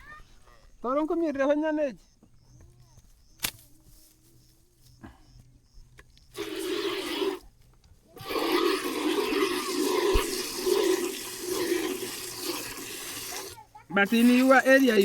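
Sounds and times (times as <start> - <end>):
milk squirting into a container: 6.4 - 7.5, 8.2 - 15.0.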